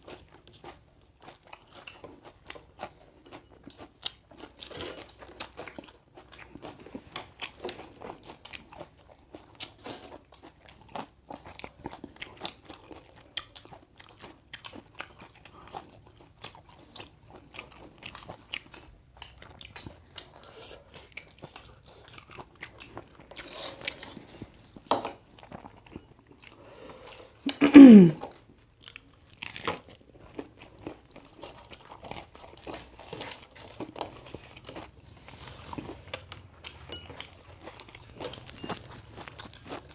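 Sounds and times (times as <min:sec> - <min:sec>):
person chewing crunchy food: 0:00.0 - 0:39.9
mouth sounds: 0:27.5 - 0:28.2.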